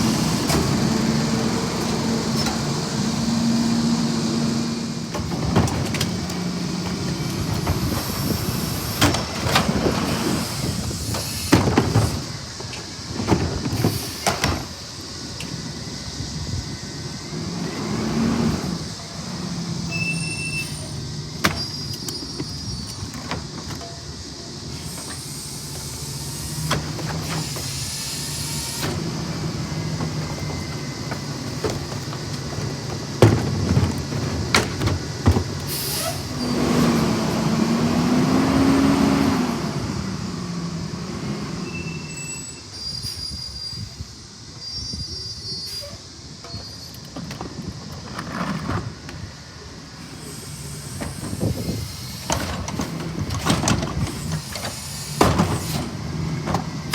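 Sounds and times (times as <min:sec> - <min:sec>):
garbage truck engine running: 0:00.0 - 0:42.2, 0:47.7 - 0:56.9
hydraulic air hiss: 0:10.0 - 0:13.1, 0:13.7 - 0:17.2, 0:18.4 - 0:23.1, 0:24.6 - 0:30.2, 0:35.6 - 0:36.5, 0:41.9 - 0:47.0, 0:50.0 - 0:53.0, 0:54.0 - 0:56.0.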